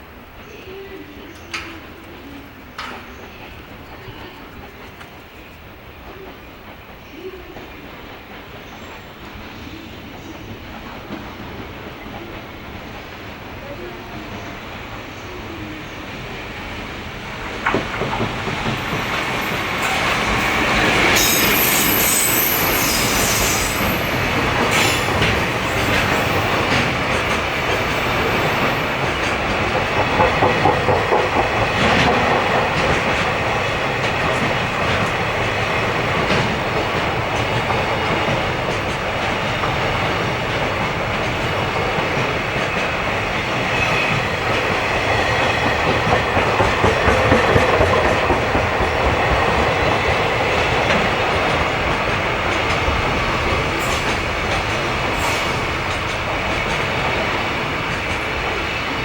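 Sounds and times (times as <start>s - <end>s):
train wheels clattering over rail joints: 17.3s - 59.0s.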